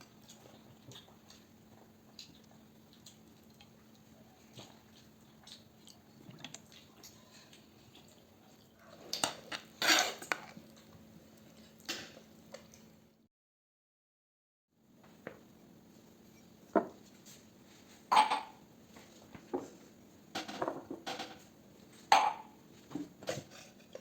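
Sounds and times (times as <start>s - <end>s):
dishes and utensils clinking: 9.2s - 10.5s.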